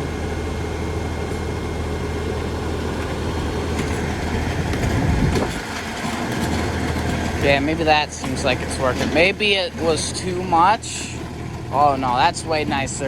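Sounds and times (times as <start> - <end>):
implement rattling and clanking: 0.0 - 13.0
tractor diesel engine running: 0.0 - 13.0.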